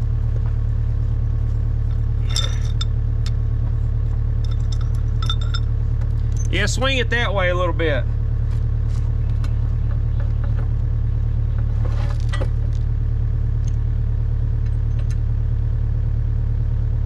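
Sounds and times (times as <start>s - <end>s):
excavator diesel engine running: 0.0s - 17.0s
metal clinks and knocks: 1.8s - 6.6s.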